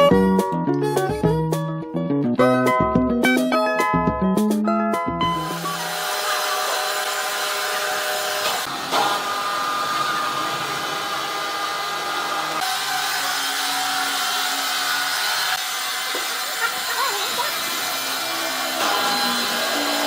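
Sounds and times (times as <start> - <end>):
sawing noise: 5.4 - 20.0
sawmill machinery whining: 5.4 - 20.0.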